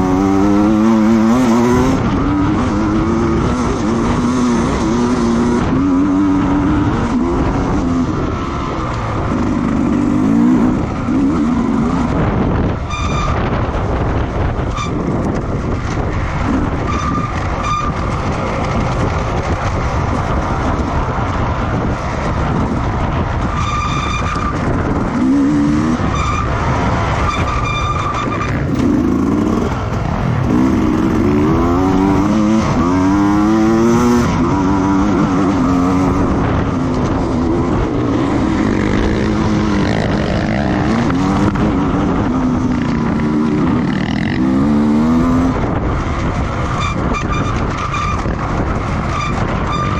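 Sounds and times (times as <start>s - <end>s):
racing motorcycle engines revving: 0.0s - 49.9s.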